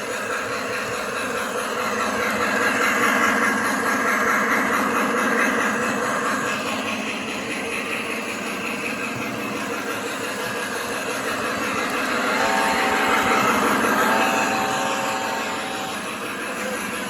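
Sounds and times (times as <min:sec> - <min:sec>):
model train rolling: 0:00.0 - 0:17.0
train chord horn: 0:11.2 - 0:17.0.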